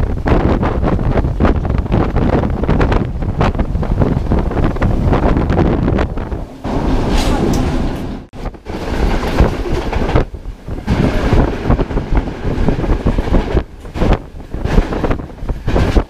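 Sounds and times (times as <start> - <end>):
train wheels clattering on track: 6.1 - 16.0.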